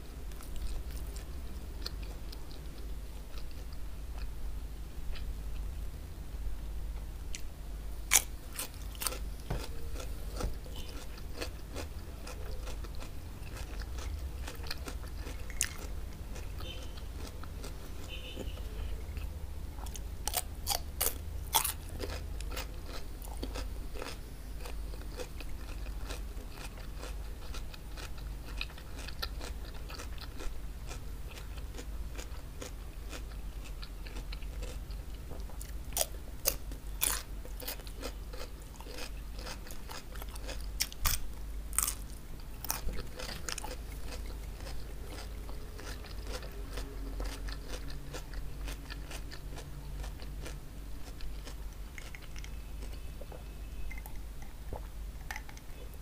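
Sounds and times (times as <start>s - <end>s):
steady low hum: 0.0s - 56.0s
wet chewing: 8.1s - 55.7s
cucumber crunching bites: 19.8s - 34.9s, 35.6s - 53.0s.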